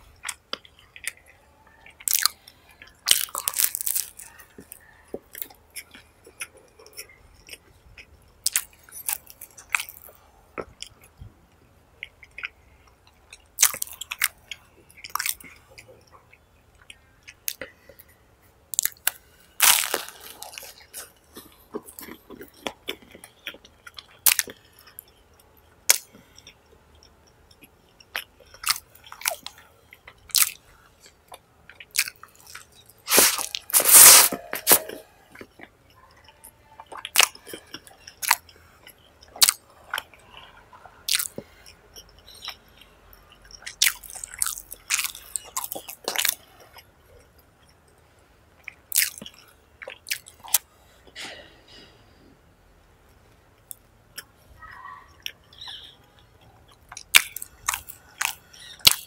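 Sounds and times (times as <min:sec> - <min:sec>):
person chewing with lip smacks: 0:00.0 - 0:11.3, 0:12.0 - 0:47.9, 0:48.6 - 0:51.9, 0:53.6 - 0:59.0.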